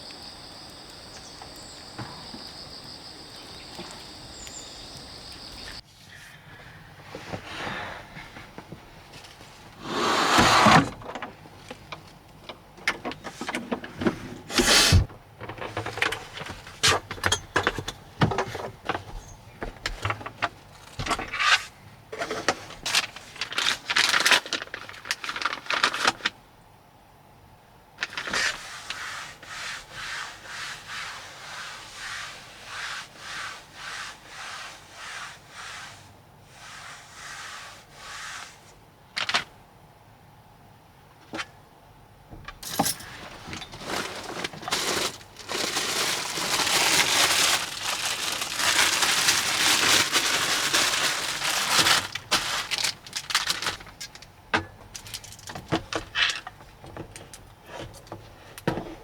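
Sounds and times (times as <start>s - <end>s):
even rubbing strokes: 28.4s - 38.8s.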